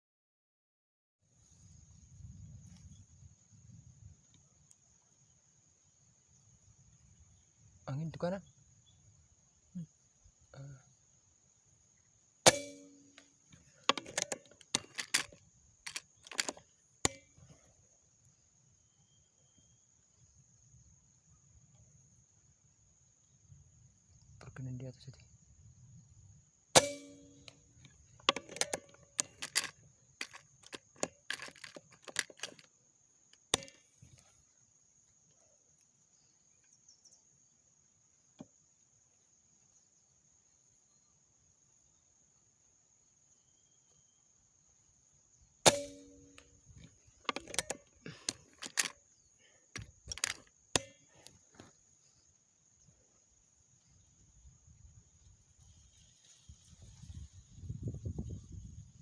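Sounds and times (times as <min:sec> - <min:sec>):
air rifle shot: 0:12.5 - 0:13.0, 0:26.8 - 0:27.4, 0:45.7 - 0:46.4
metallic ring: 0:12.5 - 0:13.3, 0:26.8 - 0:27.6, 0:45.7 - 0:46.5
metallic clicks of rifle handling: 0:12.5 - 0:17.6, 0:26.8 - 0:34.3, 0:45.7 - 0:51.7.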